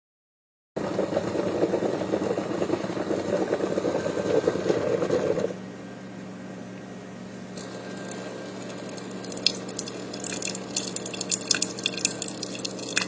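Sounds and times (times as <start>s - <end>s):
coffee maker pump buzzing: 0.8s - 5.6s, 7.5s - 13.0s.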